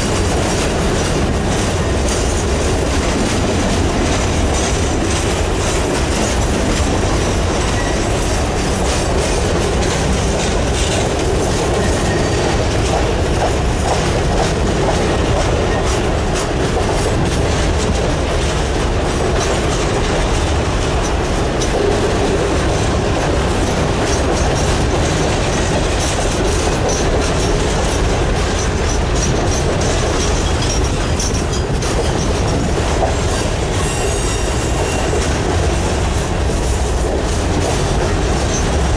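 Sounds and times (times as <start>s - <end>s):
steel wheels rumbling on rail: 0.0s - 38.9s
faint high wheel squeal: 33.8s - 35.1s.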